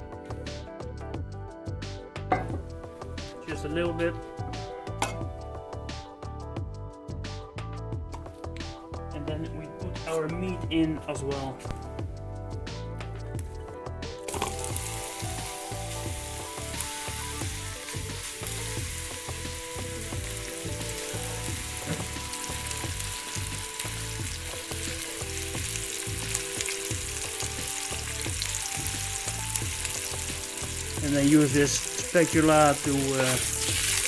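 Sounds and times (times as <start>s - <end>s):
meat sizzling in oil: 14.2s - 34.0s.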